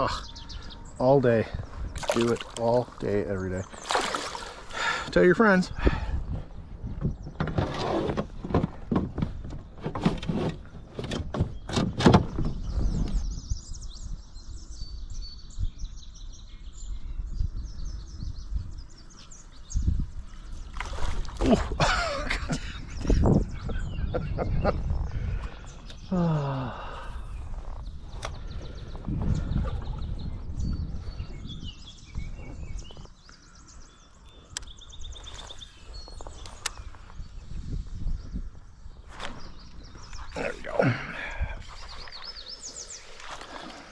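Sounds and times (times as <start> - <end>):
small birds chirping: 0.0 - 10.0, 10.6 - 43.9
outdoor background noise: 0.0 - 43.9
knocks and thumps: 7.0 - 12.6.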